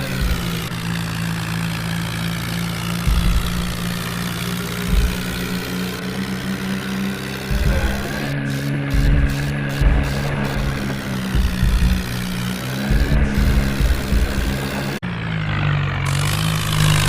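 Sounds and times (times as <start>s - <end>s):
low thuds: 0.0s - 5.8s, 7.4s - 15.0s
tractor engine running: 0.0s - 17.0s.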